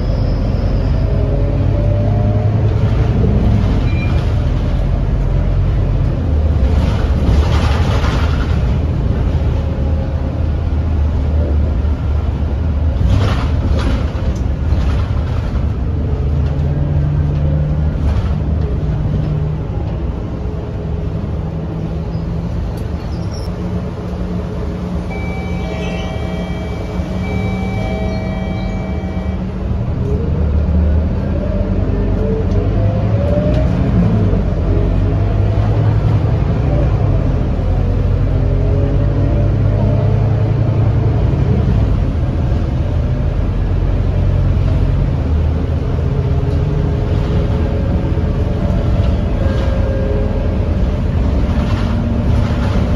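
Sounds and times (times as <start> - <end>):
bus diesel engine running: 0.0 - 52.9
steady high tone: 25.0 - 29.8.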